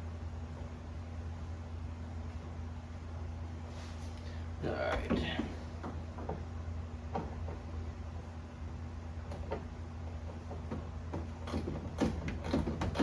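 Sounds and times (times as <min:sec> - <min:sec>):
steady low hum: 0:00.0 - 0:13.0
ratchet clicks and knocks: 0:10.6 - 0:13.0.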